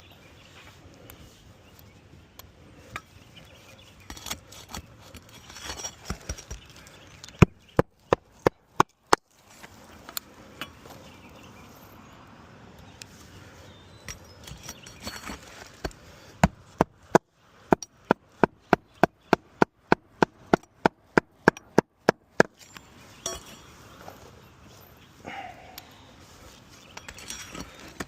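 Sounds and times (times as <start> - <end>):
shingles rustling: 4.0 - 11.1, 14.1 - 17.2, 26.2 - 28.0.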